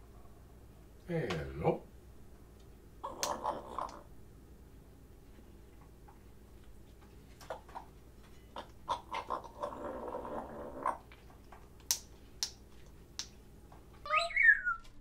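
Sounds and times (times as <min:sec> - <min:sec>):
parrot clicking: 0:03.0 - 0:04.1.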